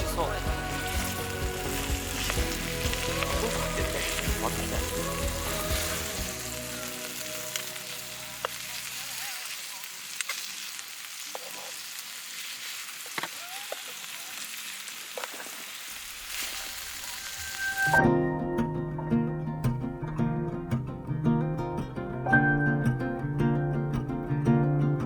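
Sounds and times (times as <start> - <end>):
food sizzling: 0.0 - 18.2.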